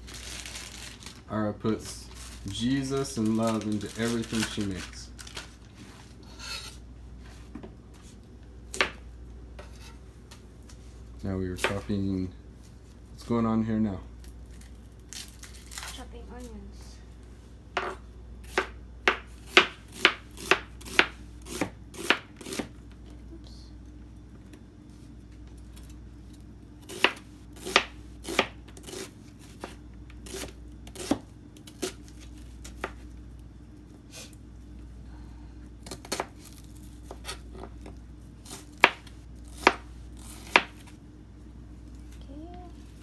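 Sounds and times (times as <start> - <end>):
knife chopping onions: 11.6 - 11.9, 17.8 - 22.7, 26.8 - 33.1, 35.8 - 41.0.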